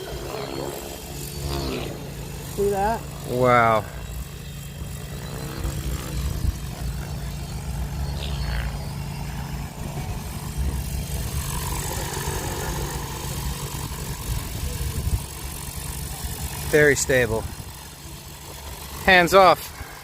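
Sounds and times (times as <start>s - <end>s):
rc helicopter rotor drone: 0.0s - 20.0s.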